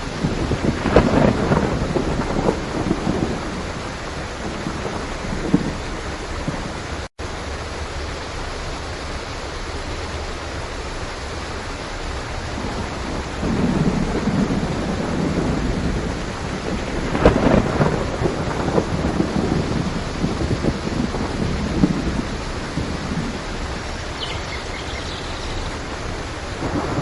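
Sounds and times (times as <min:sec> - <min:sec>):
sharp thunderclap: 0:00.0 - 0:06.8, 0:12.6 - 0:23.5, 0:26.5 - 0:27.0
low rolling thunder: 0:00.0 - 0:07.0, 0:12.4 - 0:27.0
heavy rain: 0:00.0 - 0:27.0.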